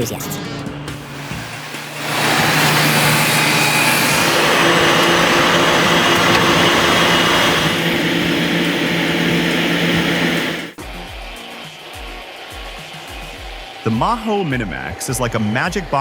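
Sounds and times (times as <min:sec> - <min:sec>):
machinery engine hum: 0:00.0 - 0:10.8
broad rushing noise: 0:01.0 - 0:10.8.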